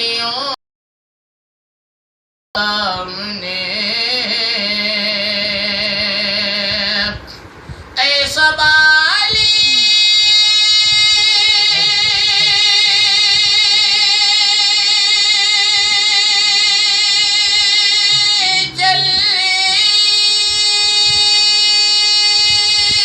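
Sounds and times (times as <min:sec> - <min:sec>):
man singing a held note: 0:09.7 - 0:23.0.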